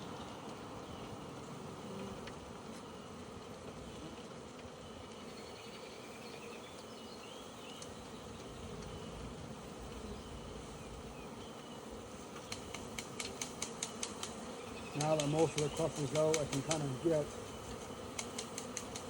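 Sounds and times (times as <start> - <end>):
bee swarm buzzing: 0.0 - 19.0
sharp clicks: 12.4 - 17.0, 18.1 - 19.0.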